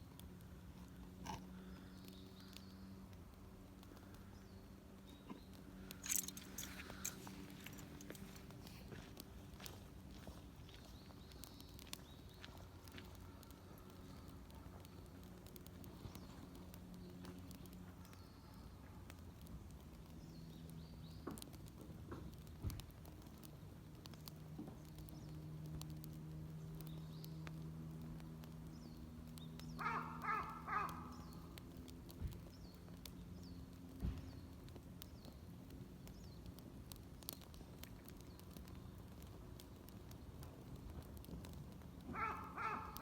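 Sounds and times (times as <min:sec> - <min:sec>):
small clicks: 0:05.4 - 0:08.6
crow cawing: 0:29.8 - 0:31.1, 0:42.1 - 0:43.0.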